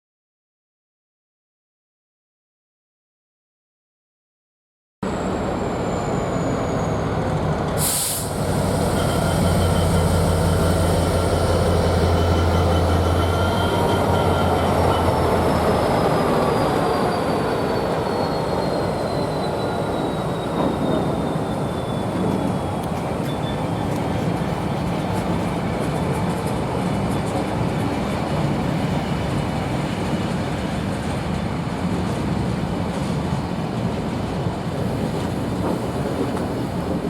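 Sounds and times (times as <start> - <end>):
high wheel squeal: 5.0 - 24.2
diesel locomotive engine drone: 5.0 - 37.0
wagons rumbling on rails: 5.0 - 37.0
short sharp hiss: 7.8 - 8.9.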